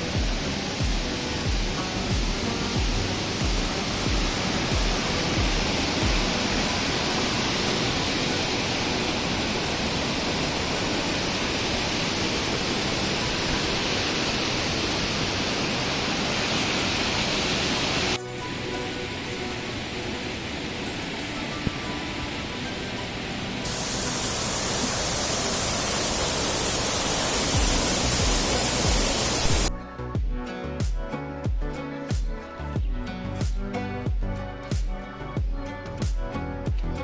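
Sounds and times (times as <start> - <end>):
background music with low beat: 0.0 - 8.4, 27.5 - 37.0
waterfall rushing: 0.0 - 29.7
soft hiss: 0.0 - 35.4.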